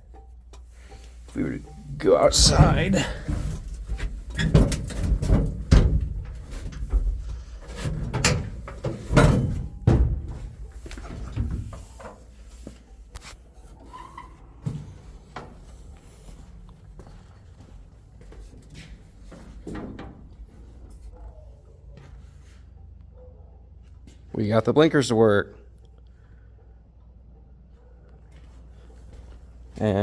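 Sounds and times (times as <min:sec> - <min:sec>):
heavy handling thumps: 0:01.8 - 0:11.8
truck cab door clunks: 0:02.3 - 0:10.6.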